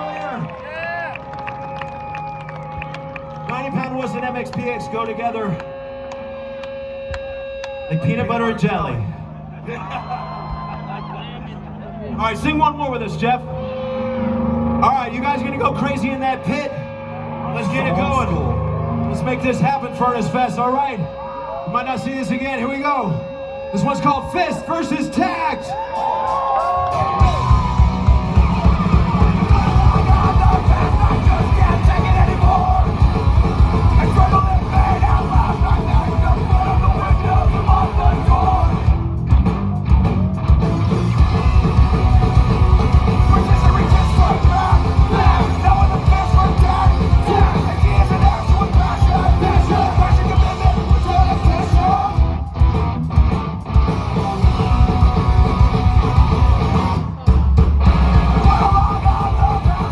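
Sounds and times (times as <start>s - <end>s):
yelled lead vocals: 10.8s - 59.9s
punk rock band playing: 26.1s - 59.9s
driving drumbeat: 26.3s - 59.9s.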